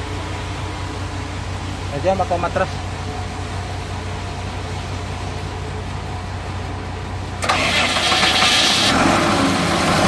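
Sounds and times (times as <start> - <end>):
low engine hum: 0.0 - 10.0
starter motor cranking diesel engine: 7.0 - 10.0.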